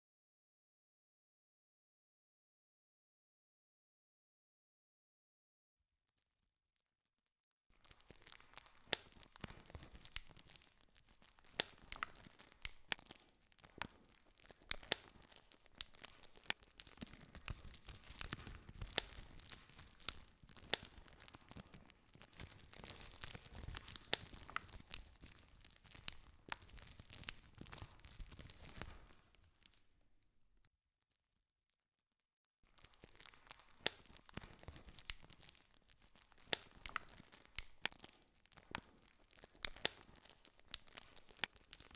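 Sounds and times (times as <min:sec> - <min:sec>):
wood crackling and popping: 0:07.7 - 0:30.7, 0:32.6 - 0:41.9
rustle of flames: 0:07.8 - 0:29.9, 0:32.7 - 0:41.9.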